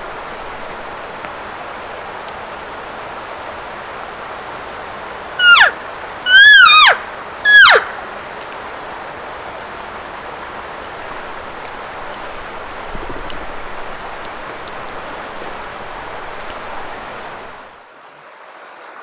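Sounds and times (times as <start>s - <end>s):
rushing background hiss: 0.0s - 17.8s
high-pitched elk calls: 5.4s - 8.1s.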